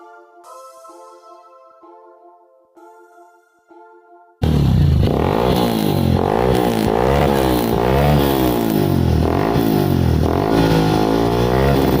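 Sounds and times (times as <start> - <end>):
motorcycle engine revving: 4.4 - 12.0.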